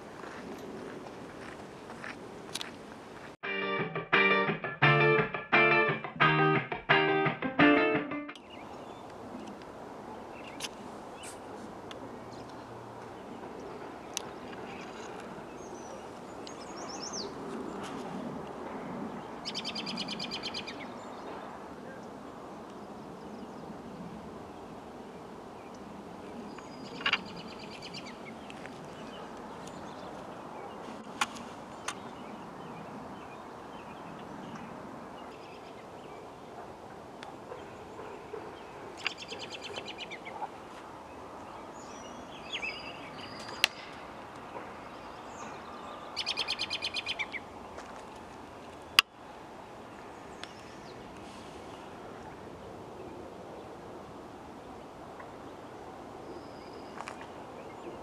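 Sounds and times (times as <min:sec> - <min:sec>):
birds calling: 0:37.5 - 0:47.8.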